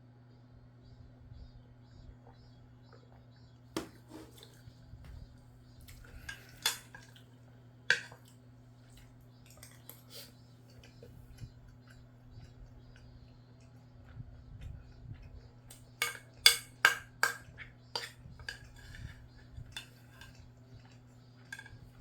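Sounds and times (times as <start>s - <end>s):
steady low hum: 0.0s - 22.0s
utensil clinking against bowl: 5.9s - 7.2s, 7.9s - 8.3s, 9.4s - 10.1s, 15.7s - 22.0s.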